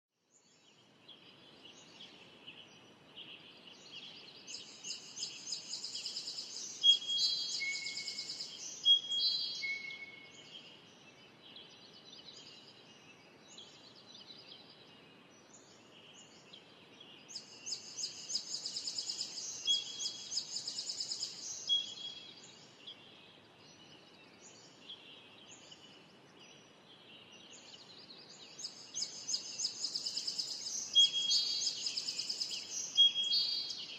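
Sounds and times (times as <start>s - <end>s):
songbird chattering song: 0.4s - 33.9s
bird softer calls: 4.5s - 10.5s, 17.4s - 22.7s, 27.6s - 33.9s.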